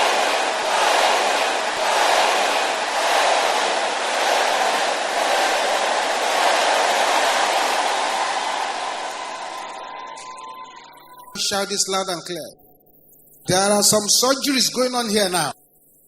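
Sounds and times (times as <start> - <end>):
crowd shouting amen: 0.0 - 10.8.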